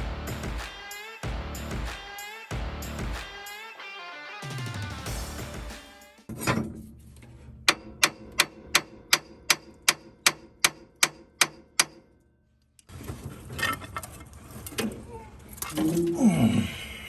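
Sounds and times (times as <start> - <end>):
sharp metallic clicks: 7.7 - 12.1.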